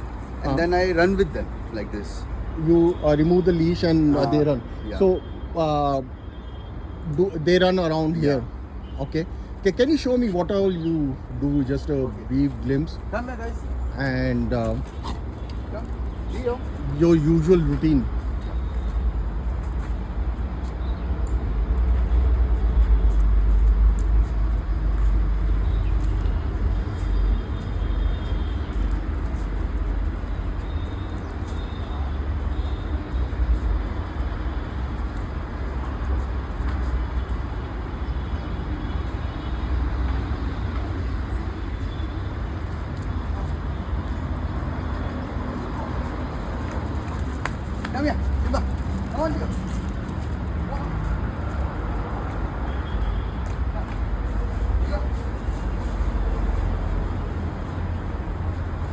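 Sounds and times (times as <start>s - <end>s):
road traffic rumble: 0.0s - 58.9s.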